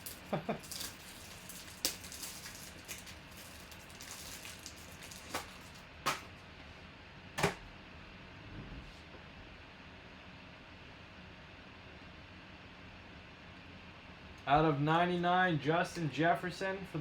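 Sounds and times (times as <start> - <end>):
cards rustling: 0.0 - 6.3.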